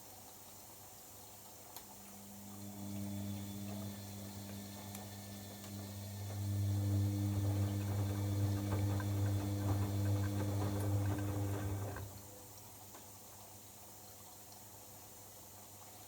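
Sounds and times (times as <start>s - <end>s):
washing machine pump humming: 1.9s - 12.3s.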